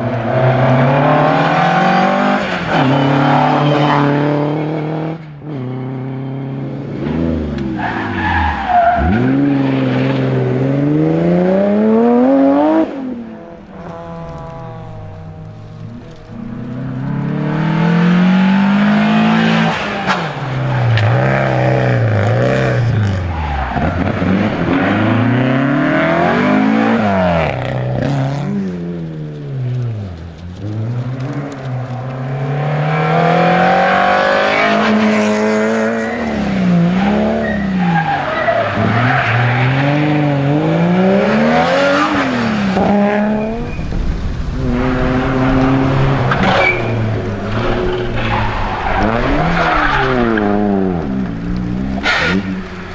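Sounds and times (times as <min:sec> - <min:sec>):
rally car engines revving: 0:00.0 - 0:52.9
lower engine note with rumble: 0:13.2 - 0:18.9.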